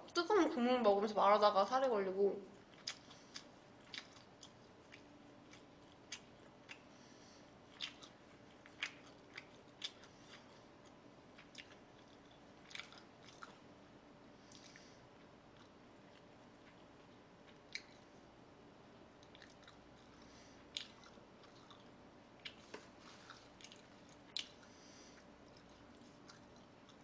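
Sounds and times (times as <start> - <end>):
low room hum: 0.0 - 27.0
wet mouth clicks chewing: 2.7 - 6.9, 7.7 - 13.6, 17.1 - 18.1, 19.2 - 22.6, 23.2 - 24.7, 25.5 - 27.0.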